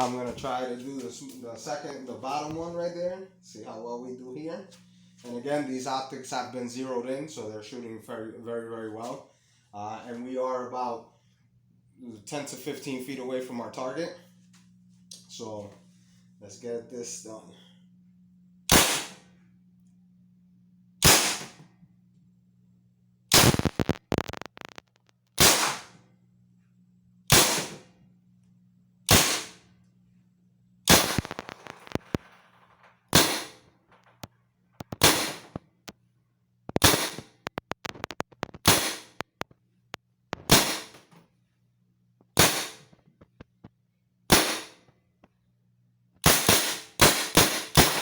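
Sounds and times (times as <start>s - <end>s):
paintball marker shots: 18.7s - 19.2s, 21.0s - 21.6s, 25.4s - 25.9s, 27.3s - 27.8s, 29.1s - 29.6s, 30.9s - 32.2s, 33.2s - 33.6s, 35.0s - 35.5s, 36.8s - 37.3s, 38.6s - 39.2s, 40.4s - 41.0s, 42.4s - 42.9s, 44.3s - 44.8s, 46.2s - 48.0s.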